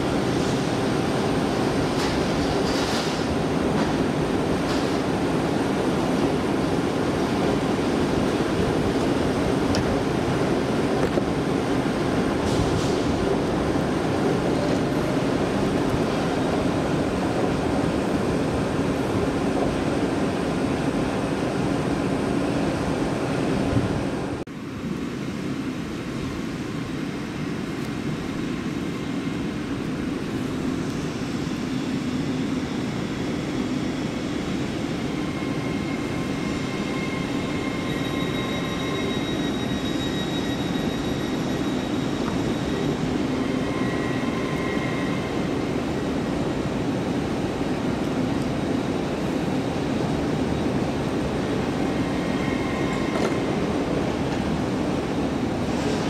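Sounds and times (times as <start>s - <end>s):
passenger train running: 0.0s - 56.0s
faint high whining tones: 27.8s - 46.5s.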